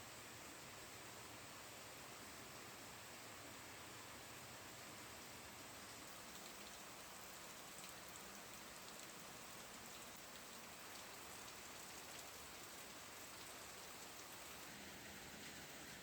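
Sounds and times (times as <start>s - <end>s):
steady rain falling: 0.1s - 16.0s
raindrop ticks: 5.9s - 14.6s.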